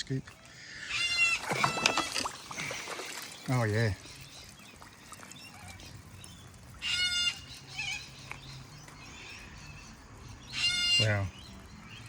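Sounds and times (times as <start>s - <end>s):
harsh high animal call: 0.8s - 2.1s.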